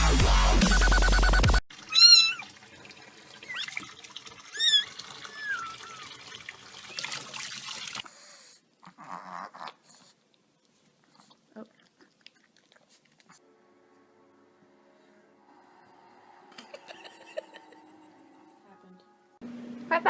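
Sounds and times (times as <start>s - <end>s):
electronic dance music: 0.0s - 1.6s
cat meowing: 1.9s - 2.5s.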